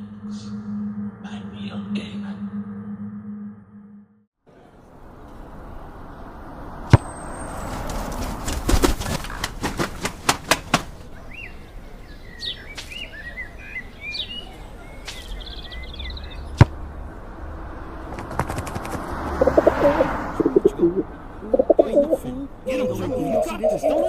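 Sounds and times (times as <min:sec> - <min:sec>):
low background rumble: 0:00.0 - 0:04.2
small birds chirping: 0:04.8 - 0:24.0
pigeon wings flapping: 0:07.6 - 0:11.1, 0:18.1 - 0:19.8
pigeons cooing: 0:18.3 - 0:24.0.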